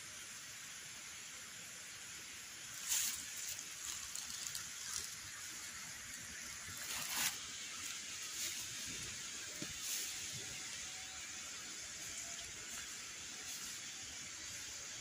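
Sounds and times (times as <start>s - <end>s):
outdoor hiss: 0.0s - 15.0s
loud rustle: 6.7s - 7.4s.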